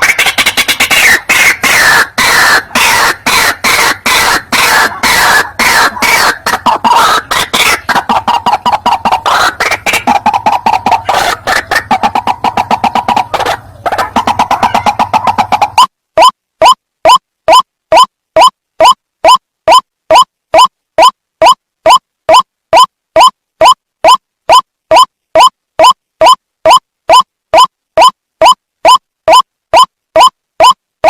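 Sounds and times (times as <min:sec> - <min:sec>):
waterhen croaking calls: 0:00.0 - 0:16.3.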